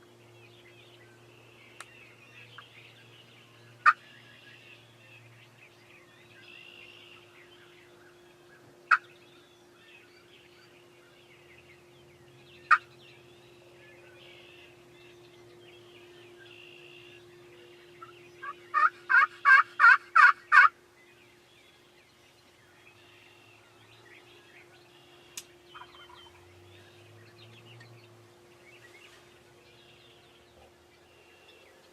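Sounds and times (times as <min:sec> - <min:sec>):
faint songbird chirps: 0:00.0 - 0:31.9
turkey clucks and yelps: 0:03.8 - 0:04.0, 0:08.9 - 0:09.1, 0:18.0 - 0:20.7, 0:25.8 - 0:26.4.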